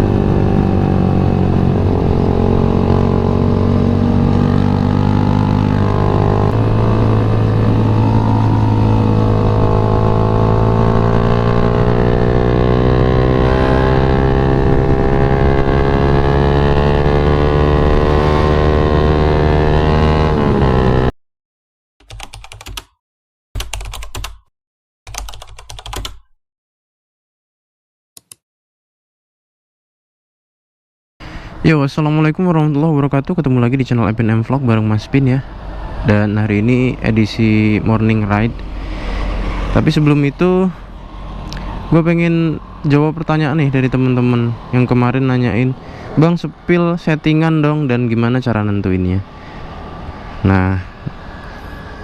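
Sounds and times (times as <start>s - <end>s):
motorcycle engine running: 0.0s - 21.1s.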